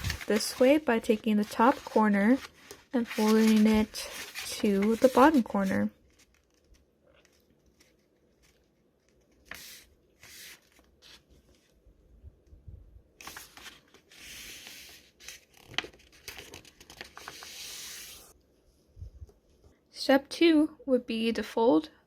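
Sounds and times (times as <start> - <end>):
paper rustling and crinkling: 0.0 - 11.7, 13.2 - 18.3.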